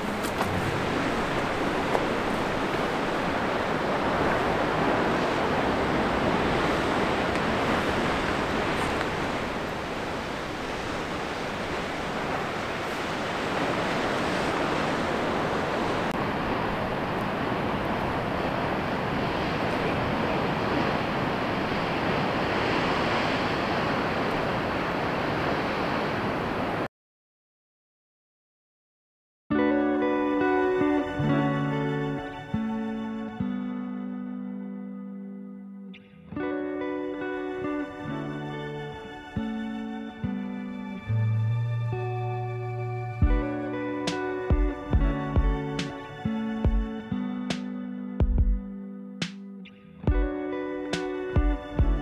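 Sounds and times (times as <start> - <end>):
ocean waves breaking: 0.0 - 26.9, 36.5 - 48.0, 50.1 - 52.0.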